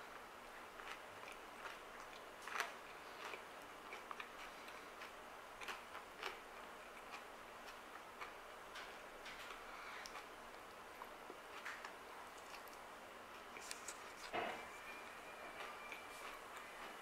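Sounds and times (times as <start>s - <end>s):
cereal crunching: 0.8s - 8.4s, 13.5s - 14.3s.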